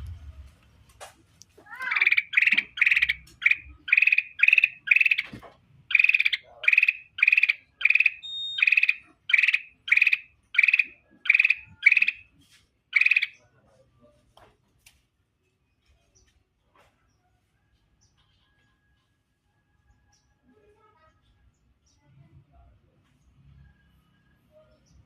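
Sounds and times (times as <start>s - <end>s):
bird warbling chirps: 1.8s - 12.2s, 13.0s - 13.4s.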